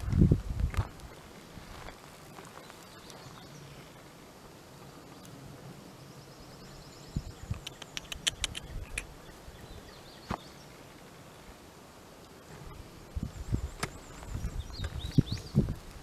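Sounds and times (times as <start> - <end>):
dry grass crackling and snapping: 0.0 - 3.5, 13.7 - 16.0.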